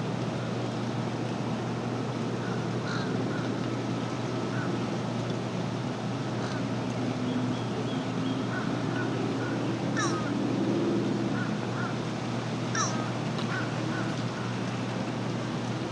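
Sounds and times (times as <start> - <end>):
steady outdoor hiss: 0.0 - 15.9
sharply sweeping bird calls: 7.2 - 10.4, 12.7 - 14.6
birds chirping: 12.8 - 14.6.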